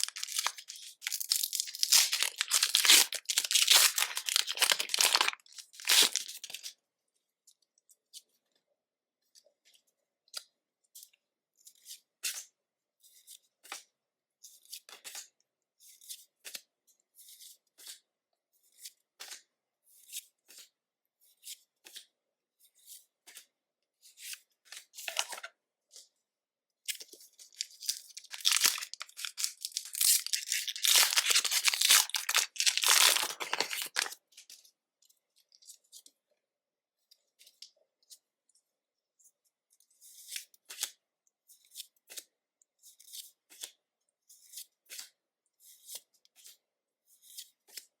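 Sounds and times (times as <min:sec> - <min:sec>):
foil wrapper tearing and crinkling: 0:00.0 - 0:06.6, 0:27.5 - 0:34.2.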